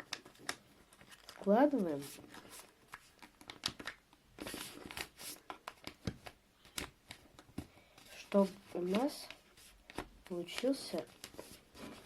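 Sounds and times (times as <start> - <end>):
paper rustling and crinkling: 0.0 - 12.0
paper fold clicks: 2.2 - 7.7.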